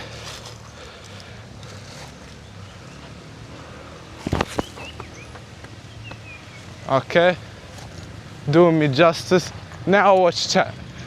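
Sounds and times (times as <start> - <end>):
outdoor background noise: 0.0 - 11.0
loud thumps: 4.2 - 6.3.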